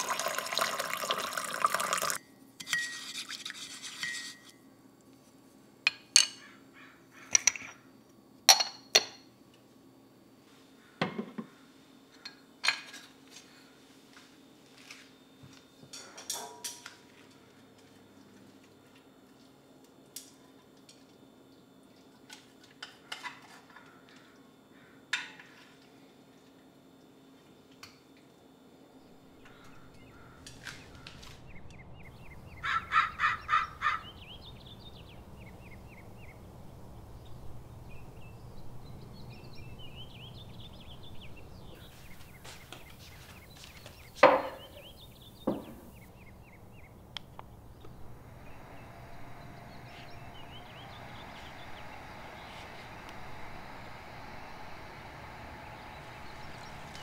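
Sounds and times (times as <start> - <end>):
light bird chirping: 29.0 - 57.0
loud bird calls: 29.1 - 57.0.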